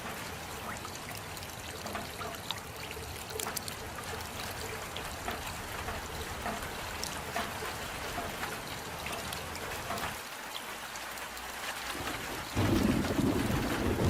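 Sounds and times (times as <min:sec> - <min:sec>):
drops splashing: 0:00.0 - 0:10.2
steady rain: 0:00.0 - 0:14.0
water trickling and pouring: 0:00.0 - 0:14.0.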